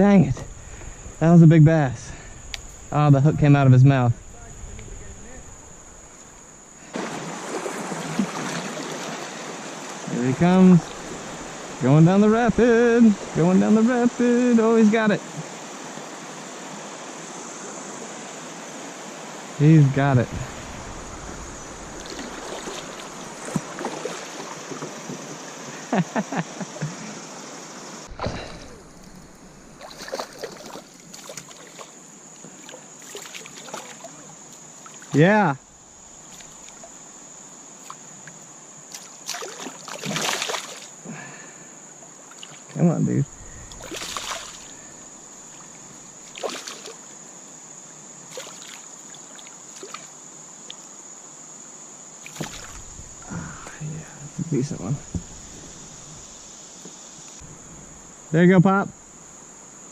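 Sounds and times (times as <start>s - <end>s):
river water rushing: 5.4s - 26.0s, 26.7s - 41.0s, 43.3s - 47.2s
splashes or knocks: 6.9s - 9.2s, 21.9s - 25.3s, 28.1s - 31.9s, 38.9s - 40.9s, 43.6s - 44.8s, 52.2s - 53.1s
knocks and clicks from boat: 54.4s - 55.5s.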